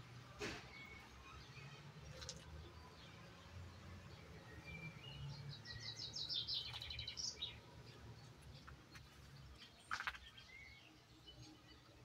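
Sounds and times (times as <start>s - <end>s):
songbird twittering: 4.5s - 7.6s.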